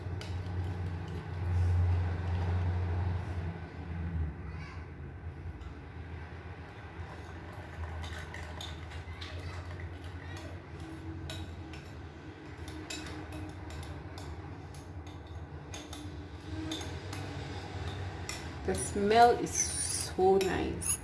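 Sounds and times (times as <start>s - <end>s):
metal spoon clinking on glass: 17.9s - 21.0s.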